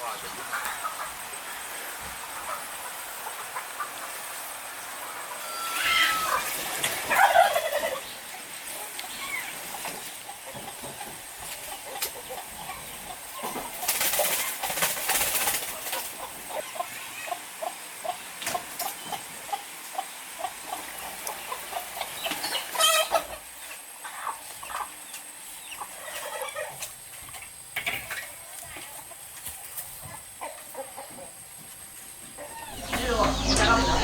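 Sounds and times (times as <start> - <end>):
chickens clucking: 0.0 - 34.0
chicken squawk: 5.0 - 8.0, 20.4 - 23.4, 32.4 - 34.0.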